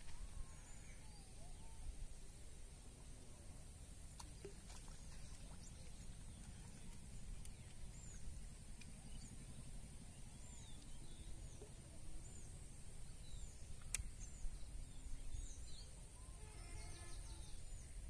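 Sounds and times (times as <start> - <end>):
low steady rumble: 0.0 - 18.0
small birds chirping: 4.1 - 18.0.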